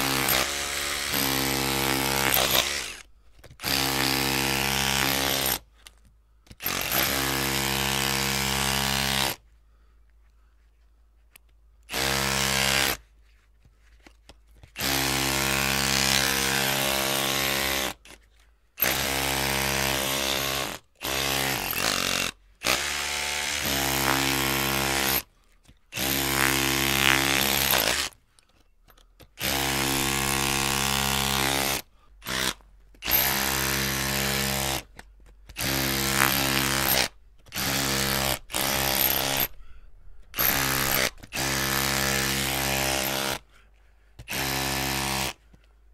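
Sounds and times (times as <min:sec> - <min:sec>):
electric drill motor running: 0:00.0 - 0:03.0, 0:26.0 - 0:28.1, 0:29.4 - 0:34.8, 0:35.6 - 0:39.6, 0:40.4 - 0:43.4, 0:44.3 - 0:45.4.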